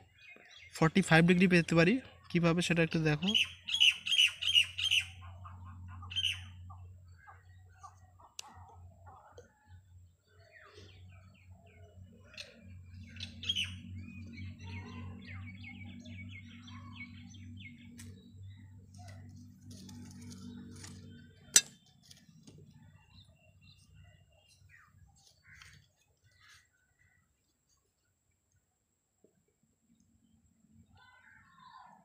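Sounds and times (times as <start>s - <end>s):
birds chirping: 0.0s - 32.0s
steady low hum: 4.3s - 25.7s.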